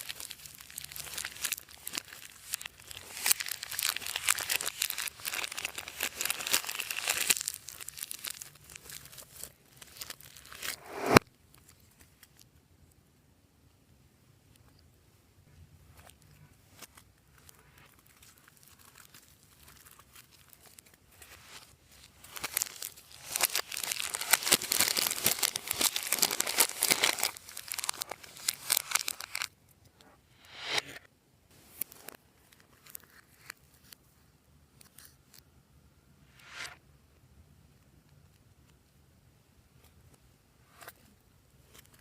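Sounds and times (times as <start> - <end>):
slime crackling: 0.0 - 11.2, 17.4 - 29.5.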